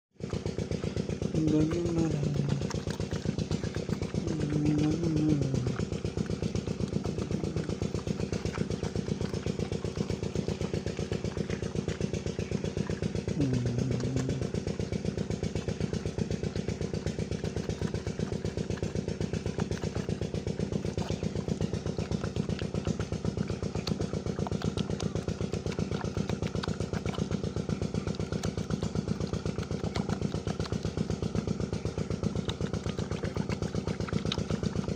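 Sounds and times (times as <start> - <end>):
engine running with fast beat: 0.1 - 34.9
short low calls: 4.0 - 6.1, 13.1 - 15.0.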